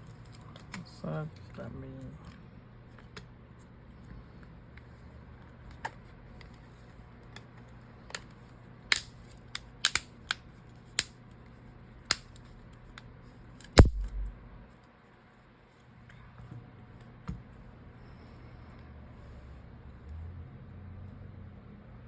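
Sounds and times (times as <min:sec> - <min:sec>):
small clicks of tools and parts: 0:07.3 - 0:10.4, 0:12.1 - 0:14.3
faint low hum: 0:13.8 - 0:14.7.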